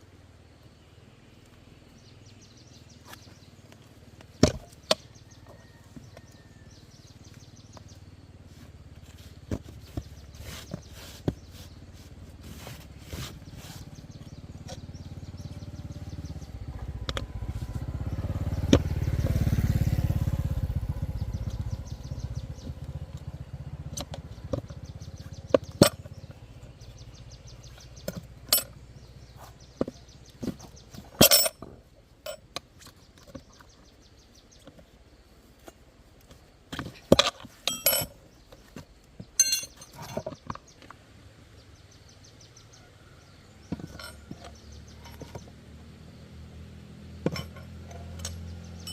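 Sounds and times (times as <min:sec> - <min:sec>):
motorbike engine passing: 0:01.6 - 0:35.8, 0:41.1 - 0:48.9
metal tools clinking: 0:28.5 - 0:28.8, 0:31.1 - 0:32.5, 0:37.1 - 0:38.2, 0:39.4 - 0:40.4, 0:43.7 - 0:45.3, 0:47.2 - 0:48.9.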